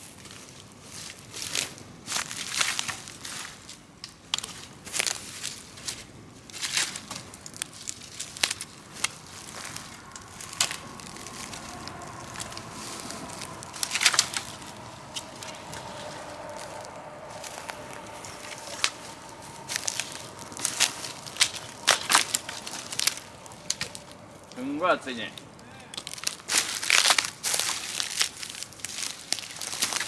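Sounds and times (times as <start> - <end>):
bonfire crackling and popping: 1.5 - 30.0
faint steady whistle: 8.0 - 25.8.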